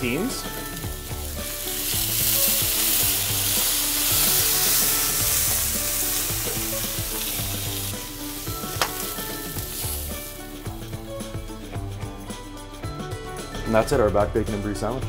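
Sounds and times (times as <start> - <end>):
water sizzling on hot surface: 0.0 - 11.5
quiet music: 0.0 - 15.0.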